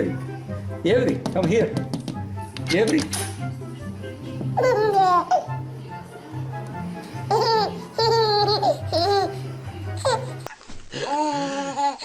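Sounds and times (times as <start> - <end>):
background music: 0.0 - 10.5
baby laughing: 4.6 - 5.6, 7.3 - 9.4, 10.0 - 10.4.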